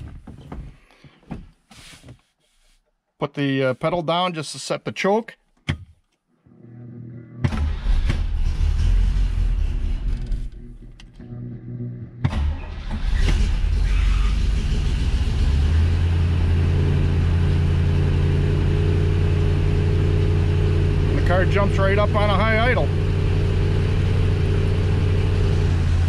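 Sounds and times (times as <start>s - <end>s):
car engine starting and idling: 6.6s - 26.0s.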